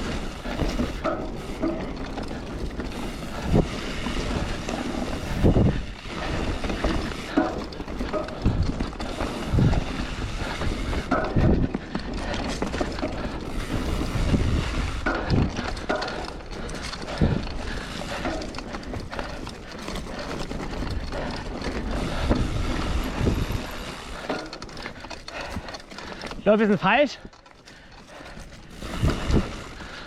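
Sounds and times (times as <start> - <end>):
bike knocks and creaks: 0.0 - 30.0
bike rolling and rattling on dirt: 0.0 - 30.0
wind on microphone: 2.3 - 7.2, 8.0 - 11.9, 13.0 - 15.9, 20.8 - 24.2, 28.4 - 30.0.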